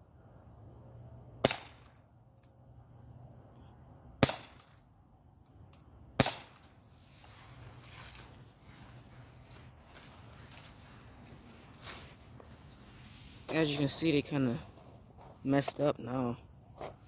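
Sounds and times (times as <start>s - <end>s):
bb pistol shots: 1.4s - 1.9s, 4.2s - 4.7s, 6.2s - 6.6s.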